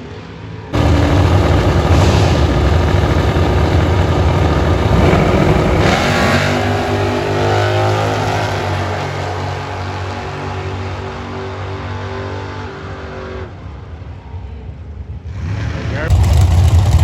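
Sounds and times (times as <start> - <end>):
car engine revving high: 0.8 - 10.1.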